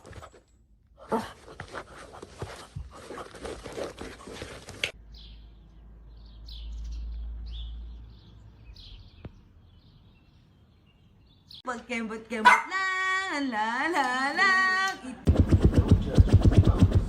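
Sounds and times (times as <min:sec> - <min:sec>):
small birds chirping: 0:04.9 - 0:11.9.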